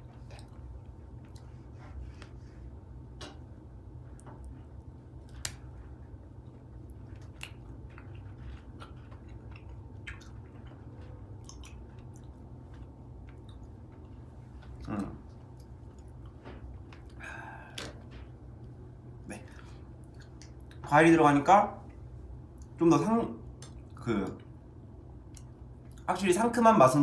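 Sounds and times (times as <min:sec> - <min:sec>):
steady low hum: 0:00.0 - 0:27.0
person chewing: 0:06.8 - 0:18.1, 0:19.4 - 0:20.8.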